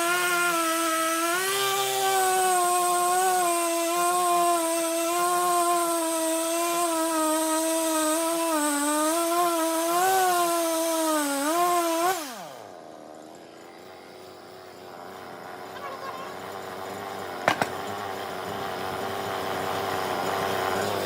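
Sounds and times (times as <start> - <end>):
power tool motor whine: 0.0 - 21.0.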